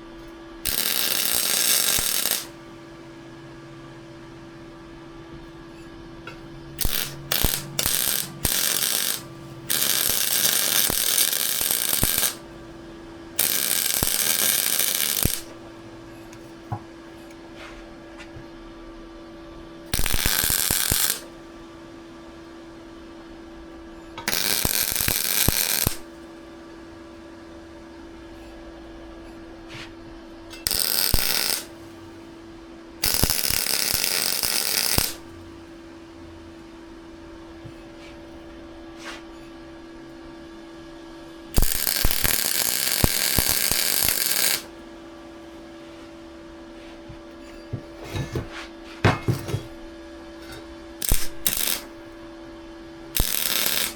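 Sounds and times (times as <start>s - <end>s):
steady hum: 0.0s - 53.9s
welding arc crackling: 0.6s - 2.6s, 6.8s - 12.6s, 13.4s - 15.6s, 19.9s - 21.4s, 24.2s - 26.2s, 30.6s - 31.9s, 33.0s - 35.3s, 41.6s - 44.7s, 51.0s - 52.0s, 53.2s - 53.9s.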